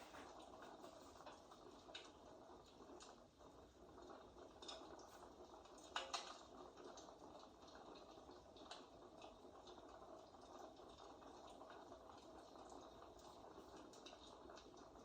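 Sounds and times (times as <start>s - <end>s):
wood fire crackling: 0.0s - 6.6s.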